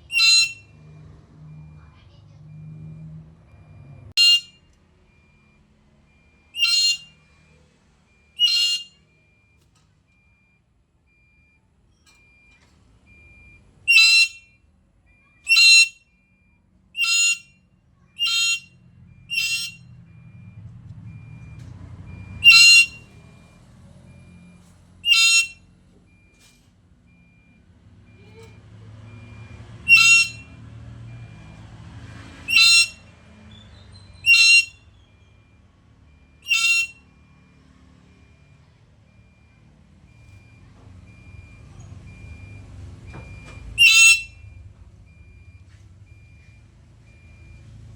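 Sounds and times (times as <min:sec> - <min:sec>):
parrot shrill calls: 0:00.1 - 0:00.6, 0:06.6 - 0:07.1, 0:08.4 - 0:08.9, 0:13.9 - 0:14.4, 0:15.5 - 0:16.0, 0:17.0 - 0:17.4, 0:18.2 - 0:18.7, 0:19.3 - 0:19.8, 0:22.4 - 0:23.0, 0:25.0 - 0:25.6, 0:29.9 - 0:30.4, 0:32.5 - 0:34.8, 0:36.4 - 0:37.0, 0:43.8 - 0:44.3.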